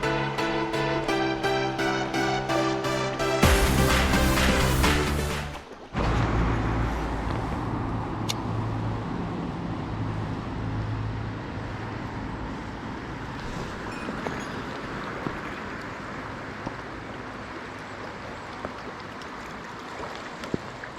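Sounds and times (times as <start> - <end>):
vehicle engine hum and road rumble: 3.4 - 19.7.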